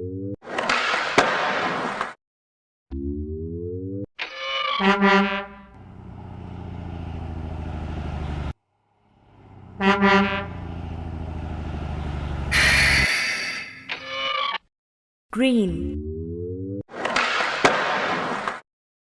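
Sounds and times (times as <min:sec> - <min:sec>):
truck horn honking: 0:04.8 - 0:05.9, 0:09.3 - 0:11.3, 0:12.0 - 0:13.8
truck engine pulsing: 0:05.6 - 0:13.3
short loud hiss: 0:12.5 - 0:13.7.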